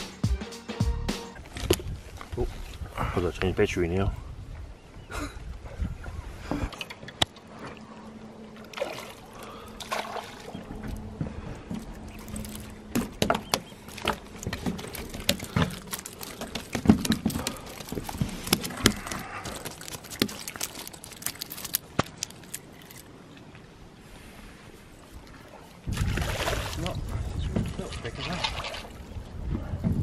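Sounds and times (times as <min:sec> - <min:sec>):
steady low hum: 0:07.8 - 0:19.4
water splashing on wooden deck: 0:08.6 - 0:22.6, 0:25.9 - 0:26.9, 0:27.5 - 0:29.0.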